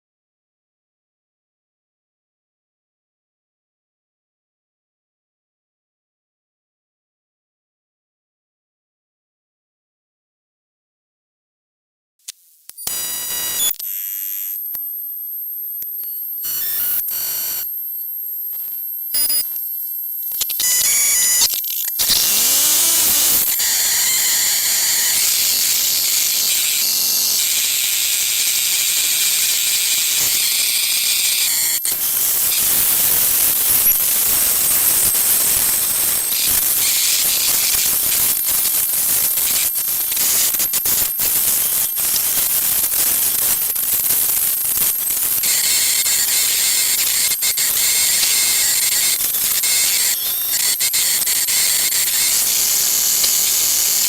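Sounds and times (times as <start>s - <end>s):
electronic interference hiss and whine: 12.3s - 54.0s.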